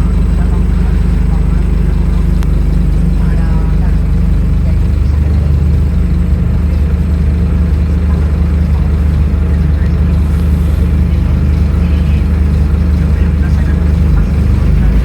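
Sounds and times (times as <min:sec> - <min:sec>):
bus diesel engine running: 0:00.0 - 0:15.0.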